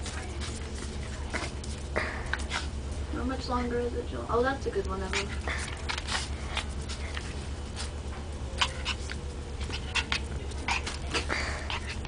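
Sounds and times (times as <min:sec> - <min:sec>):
puppy clicks and scuffles: 0:00.0 - 0:03.0, 0:04.8 - 0:12.0
steady low hum: 0:00.0 - 0:12.0.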